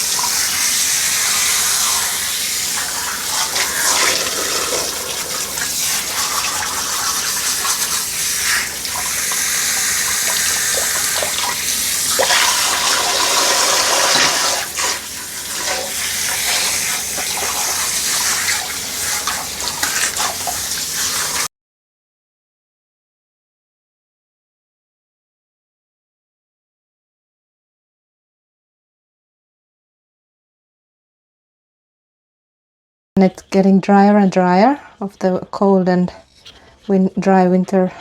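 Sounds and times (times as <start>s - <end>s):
shower water splashing on dog: 0.0s - 21.5s.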